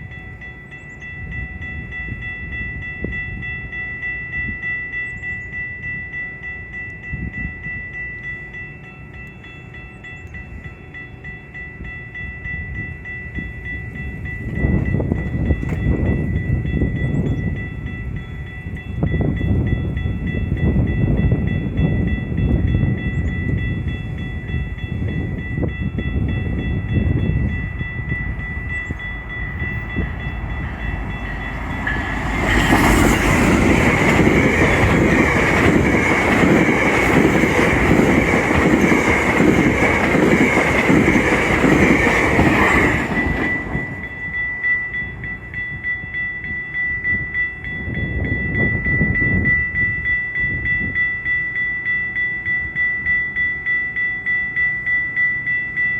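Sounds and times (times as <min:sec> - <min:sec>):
train wheels clickety-clack: 0:13.3 - 0:45.3.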